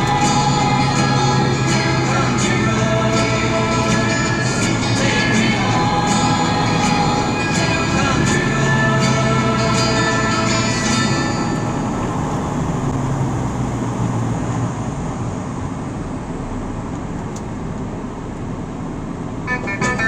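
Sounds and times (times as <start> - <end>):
song playing: 0.0 - 12.7, 19.5 - 20.0
car road and engine noise: 0.0 - 20.0.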